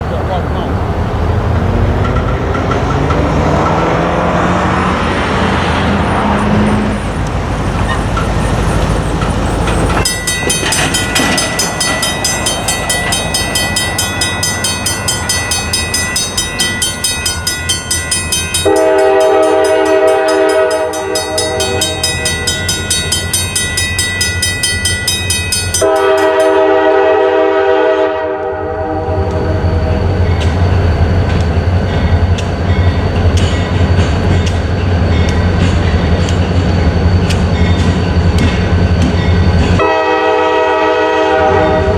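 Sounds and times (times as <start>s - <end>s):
wheels clicking over rails: 0.0s - 26.7s
crossing signal bells ringing: 0.0s - 28.3s, 28.9s - 41.9s
train engine rumbling: 0.0s - 41.9s
train horn blasts: 18.6s - 22.6s, 25.8s - 29.6s, 39.8s - 41.9s.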